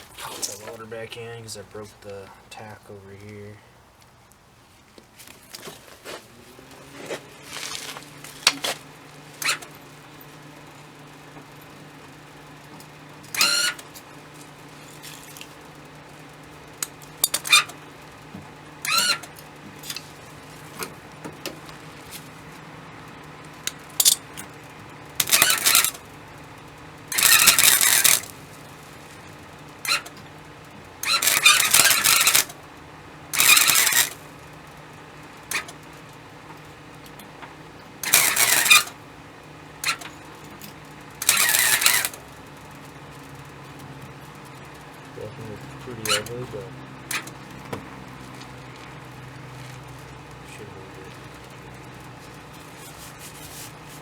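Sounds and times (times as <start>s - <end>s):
welding crackling bursts: 23.8s - 26.2s, 27.0s - 29.2s, 29.8s - 32.6s, 33.3s - 34.4s, 38.0s - 39.0s, 41.1s - 42.9s.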